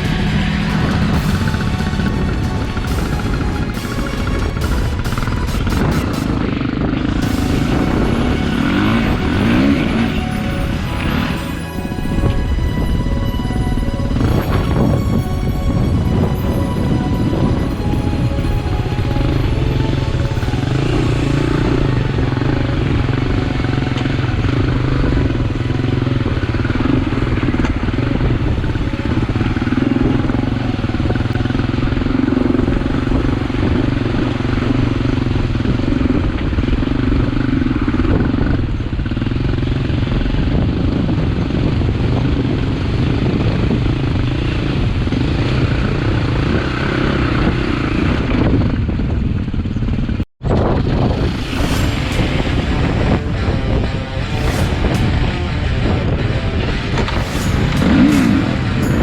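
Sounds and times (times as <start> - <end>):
dirt bike engine running: 0.0 - 10.2, 50.4 - 59.0
wind noise: 0.0 - 59.0.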